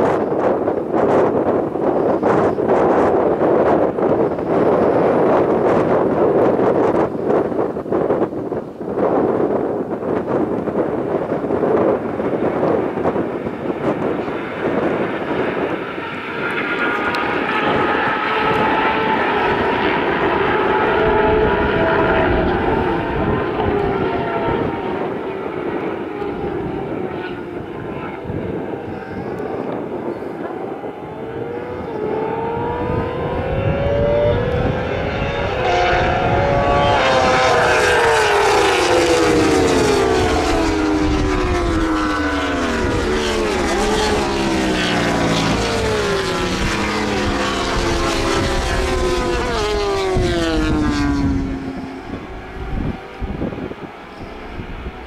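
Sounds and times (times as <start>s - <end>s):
racing motorcycles passing: 11.7s - 55.0s.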